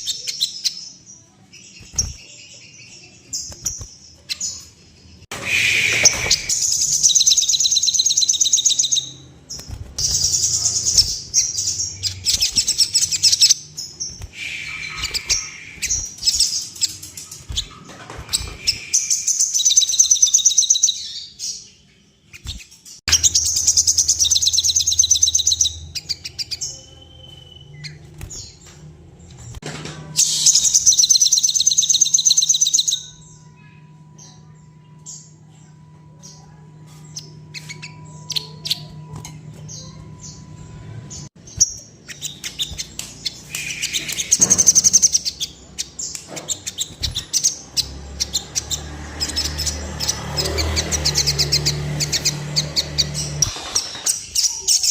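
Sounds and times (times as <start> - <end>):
bird high rapid trilling: 5.4 - 21.0.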